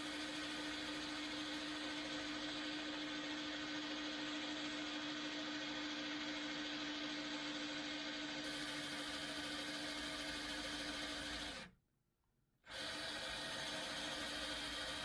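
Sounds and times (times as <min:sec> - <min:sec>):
hole saw boring into wood: 0:07.8 - 0:11.7, 0:12.7 - 0:15.0.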